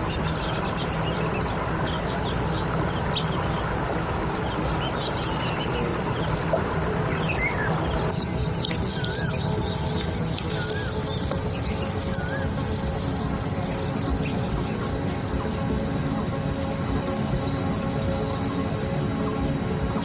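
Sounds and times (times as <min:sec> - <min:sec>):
high insect whine: 0:00.0 - 0:20.0
steady low rumble: 0:00.0 - 0:20.0
bird chirps: 0:07.0 - 0:15.2.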